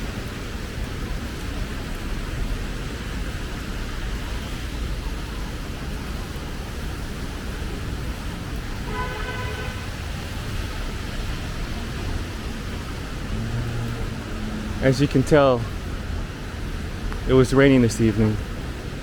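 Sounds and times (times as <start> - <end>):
traffic on wet street: 0.0 - 19.0
vehicle horn: 8.8 - 10.2.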